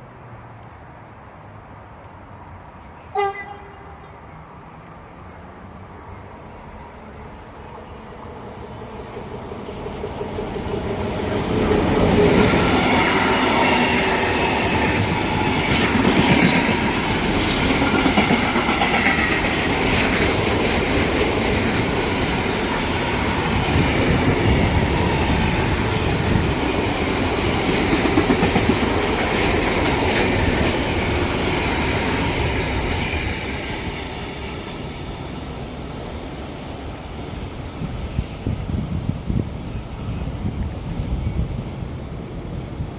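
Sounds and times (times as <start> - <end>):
train wheels rumbling and clattering: 8.7 - 42.9.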